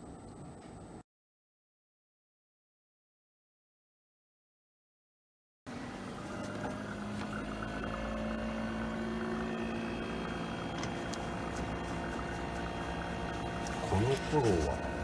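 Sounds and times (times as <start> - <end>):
machine hum with low drone: 5.7 - 15.0.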